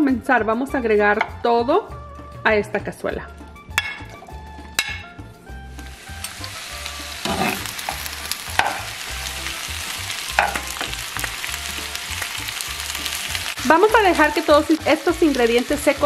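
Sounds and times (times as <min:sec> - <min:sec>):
vegetables sizzling in oil: 0:05.7 - 0:16.0
metal spoon scraping pan: 0:07.2 - 0:07.7.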